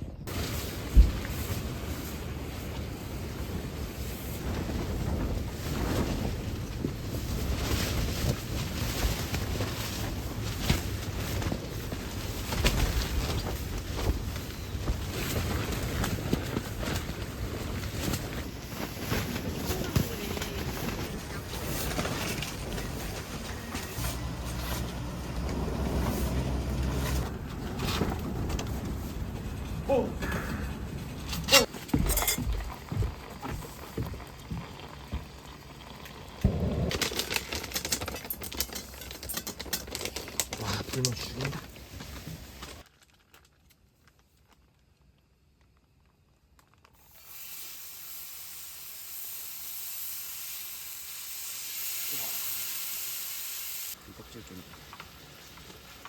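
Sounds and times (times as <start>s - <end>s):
meat sizzling in a pan: 47.0s - 53.9s.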